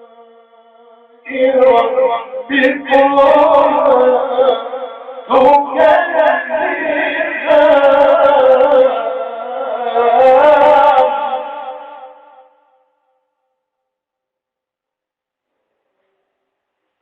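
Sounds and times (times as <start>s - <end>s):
man reciting melodically: 0.0s - 12.6s.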